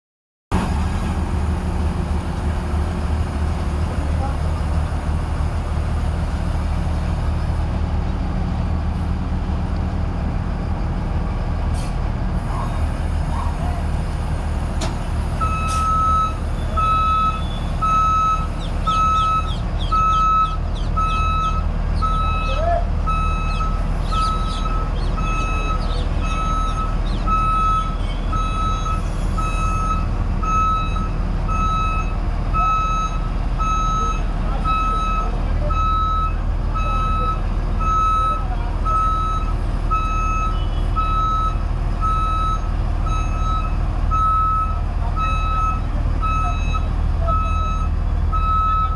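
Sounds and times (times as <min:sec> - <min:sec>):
combine harvester engine running: 0:00.5 - 0:48.9
reversing alarm beeps: 0:15.4 - 0:48.9.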